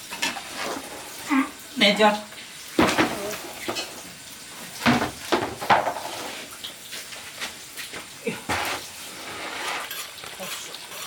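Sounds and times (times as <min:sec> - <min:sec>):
dishes and utensils clattering: 0:02.8 - 0:04.1.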